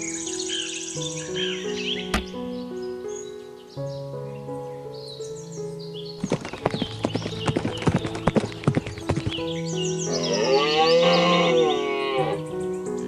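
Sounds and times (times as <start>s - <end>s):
background music: 0.0s - 13.0s
hooves clopping: 6.2s - 12.5s
cow mooing: 10.1s - 12.4s.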